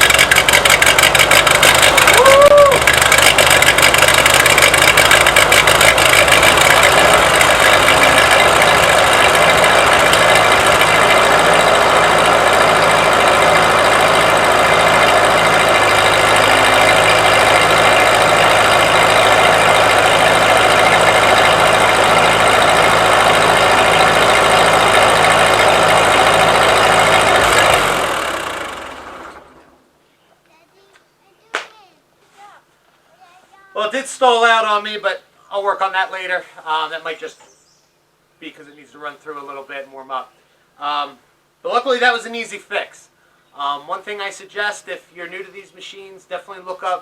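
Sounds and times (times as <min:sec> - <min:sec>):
tractor engine running: 0:00.0 - 0:29.8.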